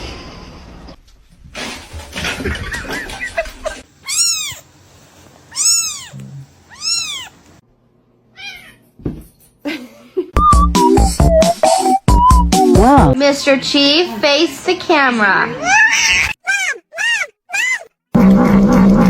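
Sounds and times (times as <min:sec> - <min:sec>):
cat meowing: 0:04.0 - 0:04.6, 0:05.5 - 0:07.4, 0:08.3 - 0:08.8, 0:15.6 - 0:17.9.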